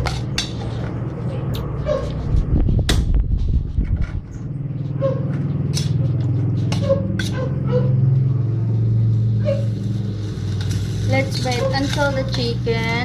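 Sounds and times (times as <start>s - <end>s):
steady low hum: 0.0s - 13.0s
utensil scraping a pan: 9.3s - 13.0s.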